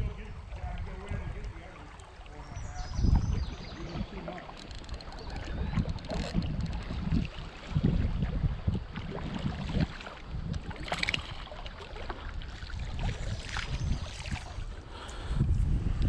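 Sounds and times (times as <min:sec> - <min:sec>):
creek water running: 0:00.0 - 0:15.3
wind buffeting microphone: 0:00.0 - 0:16.0
splash or rattle: 0:04.2 - 0:08.0, 0:09.2 - 0:12.2.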